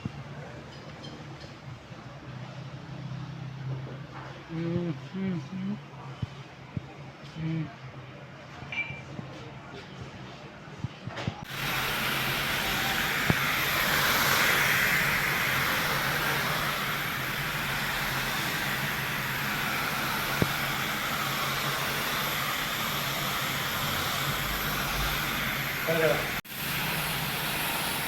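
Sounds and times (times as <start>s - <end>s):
power tool hissing: 11.4s - 28.0s.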